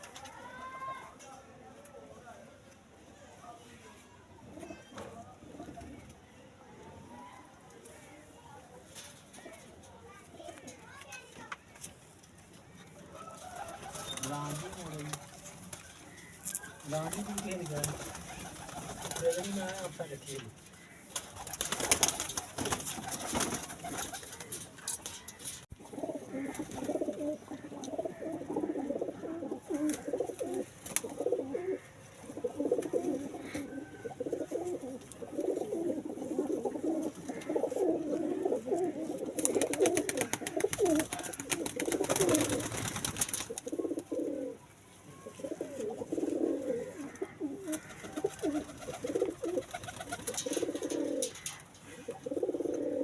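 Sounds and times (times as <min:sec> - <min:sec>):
pigeons cooing: 0:23.0 - 0:44.6, 0:45.2 - 0:53.0.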